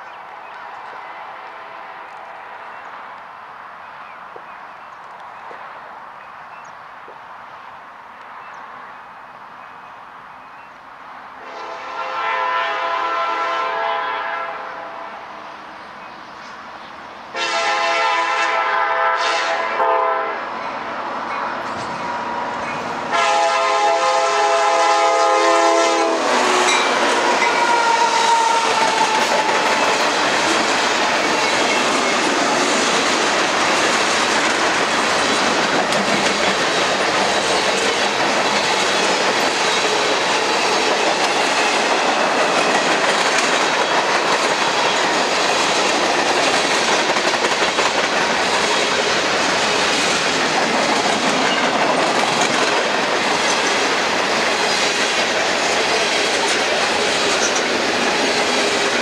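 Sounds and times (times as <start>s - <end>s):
freight train rumble: 9.8s - 59.0s
locomotive horn blasts: 11.4s - 15.1s, 17.3s - 20.4s, 23.1s - 29.3s
wheels clacking over rail joints: 26.6s - 59.0s.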